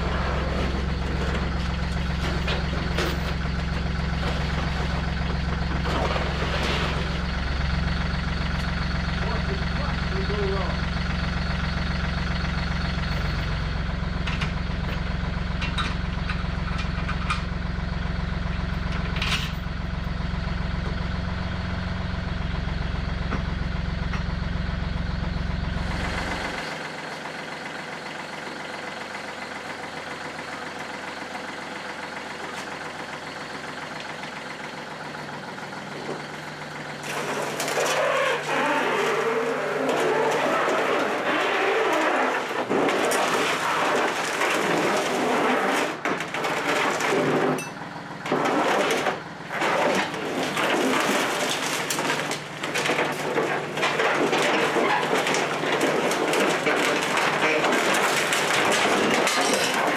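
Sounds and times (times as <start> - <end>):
loud rough scratchy noise: 0.0 - 10.9, 37.0 - 47.6, 48.2 - 59.9
engine idling: 0.0 - 59.9.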